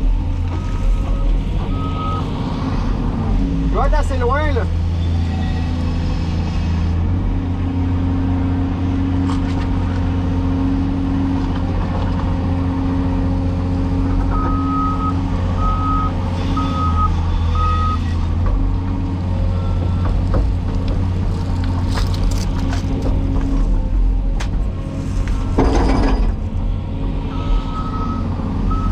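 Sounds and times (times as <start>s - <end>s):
excavator diesel engine running: 0.0s - 3.5s, 9.7s - 28.9s.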